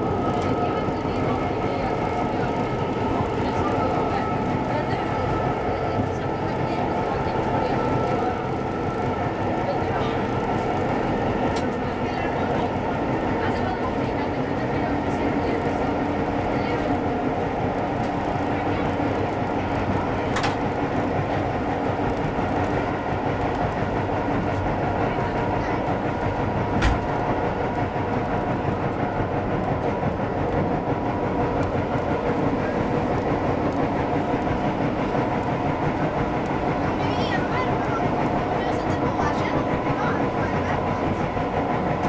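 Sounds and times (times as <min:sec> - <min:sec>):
train wheels rumbling on rails: 0:00.0 - 0:42.0
loud thump: 0:26.8 - 0:27.1.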